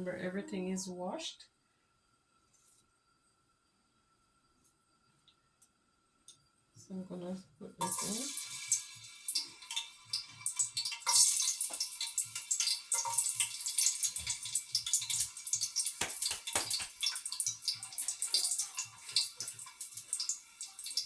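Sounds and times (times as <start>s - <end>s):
food sizzling in hot oil: 7.8s - 21.0s.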